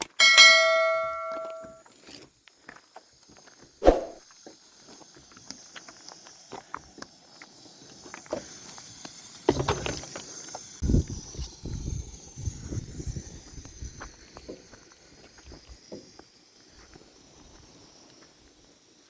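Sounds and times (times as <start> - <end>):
footsteps: 0.2 - 1.8, 3.4 - 4.2.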